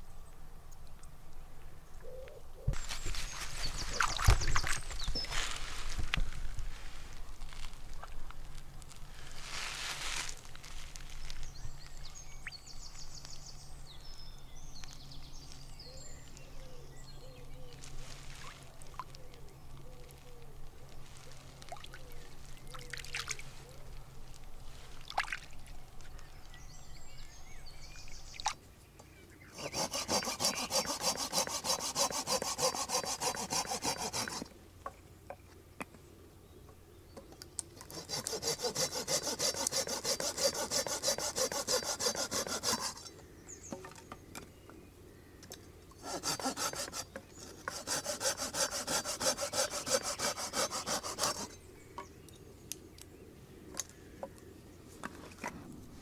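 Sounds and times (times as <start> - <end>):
hand saw cutting wood: 29.5 - 34.6, 37.8 - 43.2, 46.0 - 51.6.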